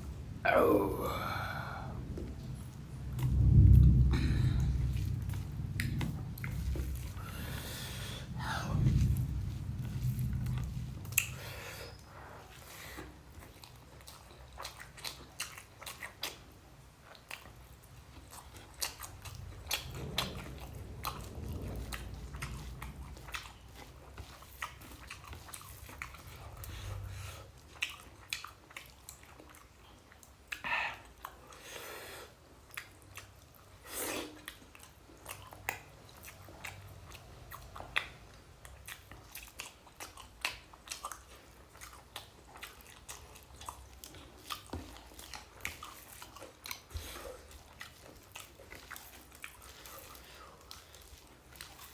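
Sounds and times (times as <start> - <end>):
low rumble: 0.0 - 11.7, 18.4 - 27.5
person chewing food: 0.0 - 51.9.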